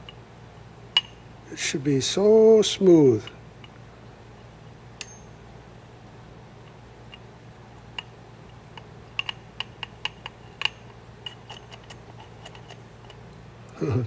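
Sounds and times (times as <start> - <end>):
metallic clicks of small parts: 8.8 - 13.4.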